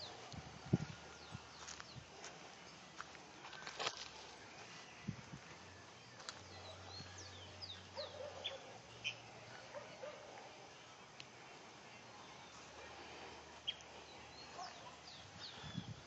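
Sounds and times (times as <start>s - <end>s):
faint bird chirps: 6.4s - 9.3s, 13.6s - 16.0s.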